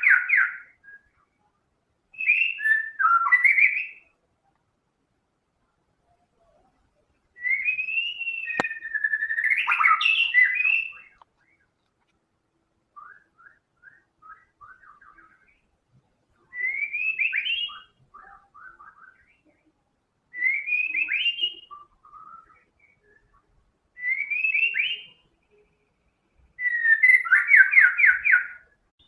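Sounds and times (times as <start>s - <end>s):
bird singing whistled phrases: 0.0s - 1.4s, 2.2s - 4.1s, 7.4s - 11.2s, 13.0s - 15.7s, 16.5s - 19.5s, 20.3s - 25.3s, 26.6s - 28.8s.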